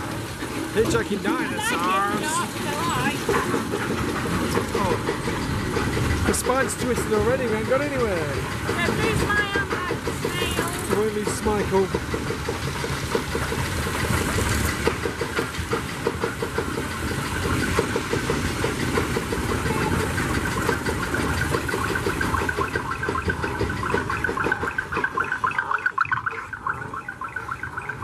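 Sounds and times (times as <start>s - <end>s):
coaster car rattling on track: 0.0s - 28.0s.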